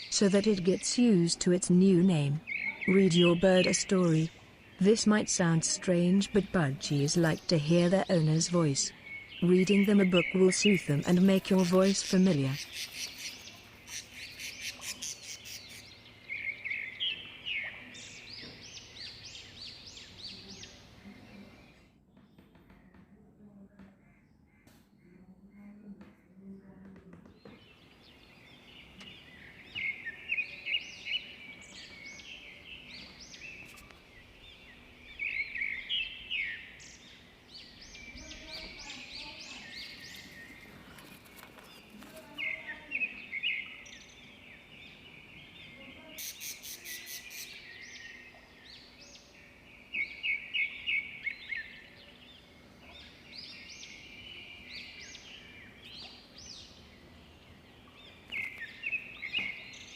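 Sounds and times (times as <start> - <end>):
budgerigars chirping and chattering: 0.0 - 21.0, 35.1 - 48.3.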